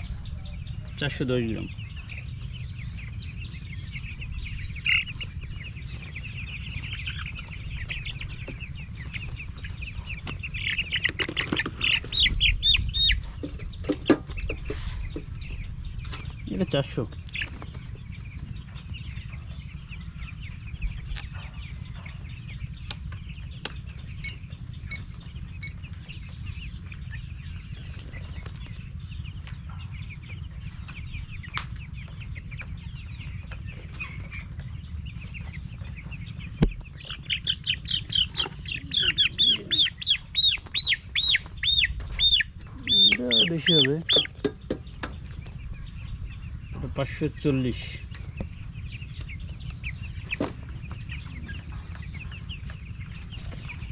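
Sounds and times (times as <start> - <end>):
chicks peeping: 0.0 - 53.9
wings flapping: 6.9 - 14.6, 17.2 - 18.9, 36.6 - 45.7.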